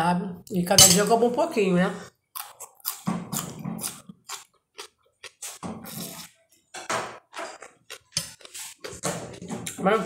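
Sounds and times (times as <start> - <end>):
chewing and smacking: 2.3 - 6.3, 7.4 - 9.8.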